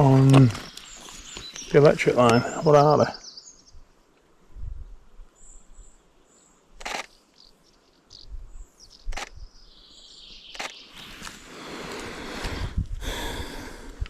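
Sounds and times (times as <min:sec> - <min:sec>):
small birds chirping: 0:00.0 - 0:04.2, 0:04.8 - 0:14.0
sharp clicks: 0:06.8 - 0:07.2, 0:09.0 - 0:09.4, 0:10.5 - 0:10.9.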